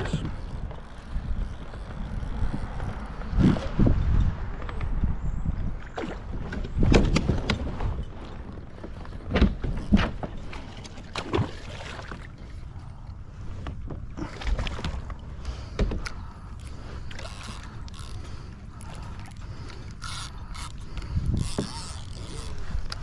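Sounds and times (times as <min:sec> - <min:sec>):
wind and water rumble on microphone: 0:00.0 - 0:23.0
knocks and clunks on a kayak: 0:05.9 - 0:12.4, 0:13.4 - 0:16.3, 0:21.3 - 0:21.9.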